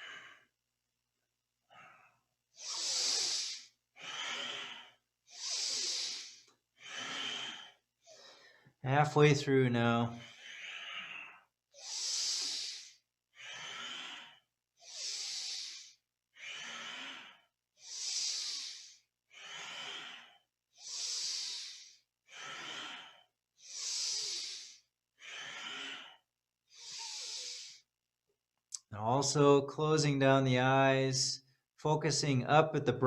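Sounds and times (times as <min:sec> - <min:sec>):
deep breathing through nose: 0:00.0 - 0:00.5, 0:01.7 - 0:08.8, 0:10.2 - 0:27.9.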